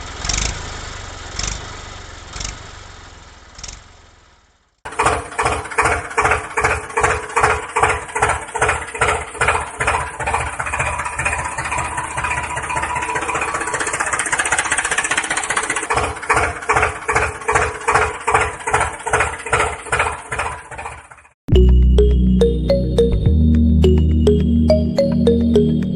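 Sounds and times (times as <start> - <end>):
tractor engine chugging: 4.9 - 21.4.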